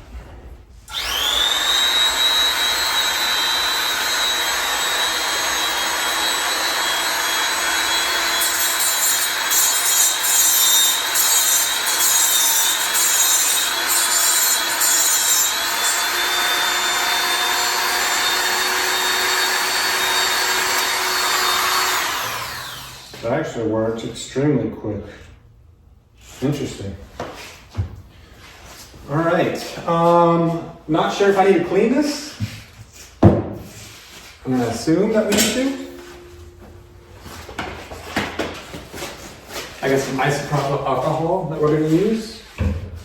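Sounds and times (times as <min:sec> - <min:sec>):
electric grinder whining: 0:00.9 - 0:23.2.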